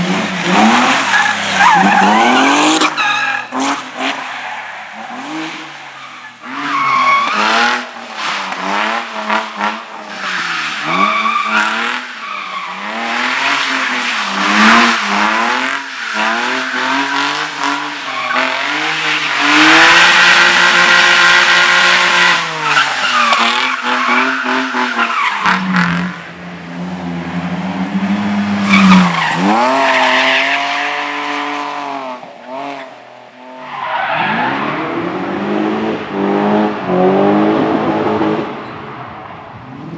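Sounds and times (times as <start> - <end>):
car engine revving: 0.0 - 4.2, 4.9 - 33.0
tyre squeal: 1.1 - 3.6, 6.0 - 7.8.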